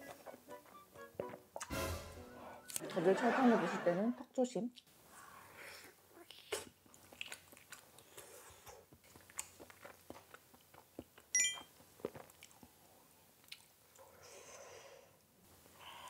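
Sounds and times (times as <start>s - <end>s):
wet chewing mouth clicks: 6.2s - 11.3s
bright ringing clink: 11.4s - 11.7s.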